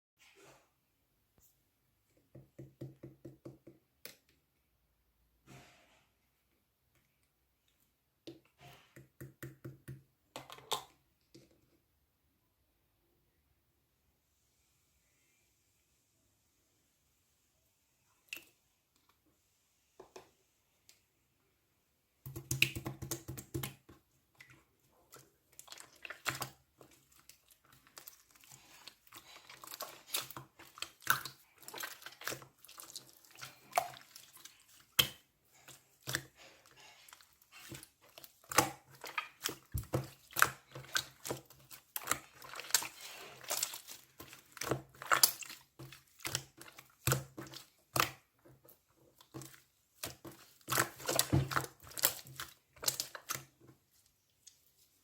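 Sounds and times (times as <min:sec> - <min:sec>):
hands squishing slime: 0:22.2 - 0:55.0.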